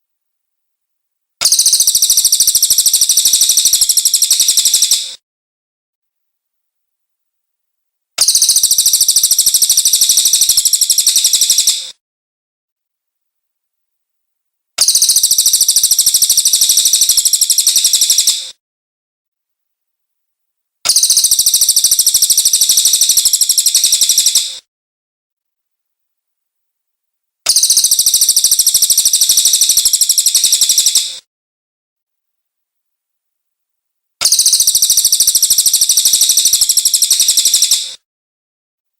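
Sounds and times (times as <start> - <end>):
bird high-pitched trills: 1.4 - 5.2, 8.2 - 11.9, 14.8 - 18.5, 20.9 - 24.6, 27.5 - 31.2, 34.2 - 38.0.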